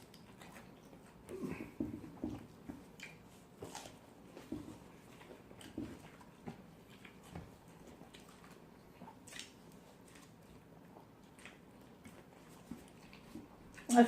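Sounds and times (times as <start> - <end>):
person chewing: 0.0 - 13.9
soft mouth clicks and smacks: 2.8 - 3.2, 8.0 - 14.0.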